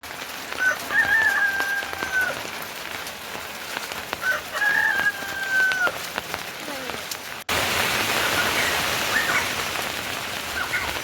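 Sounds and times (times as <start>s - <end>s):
steady rain falling: 0.0s - 11.0s
water drips and patters: 0.0s - 11.0s
drawn-out falling call: 0.5s - 2.4s, 4.2s - 6.0s, 8.1s - 9.6s.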